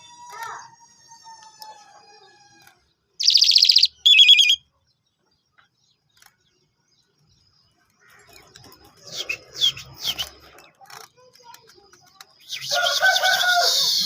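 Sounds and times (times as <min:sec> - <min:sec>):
songbird trilling: 0:03.2 - 0:04.6.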